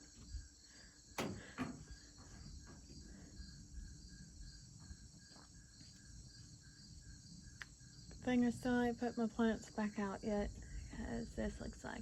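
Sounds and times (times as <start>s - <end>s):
insects chirping: 0.0s - 12.0s
low outdoor rumble: 8.1s - 12.0s.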